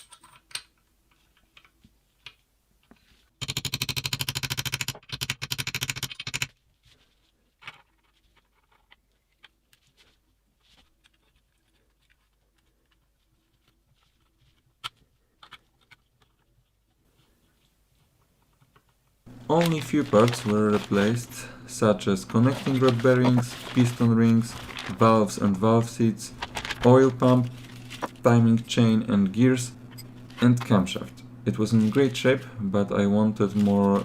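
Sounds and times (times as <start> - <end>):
tools clinking and tapping: 0.0 - 1.7.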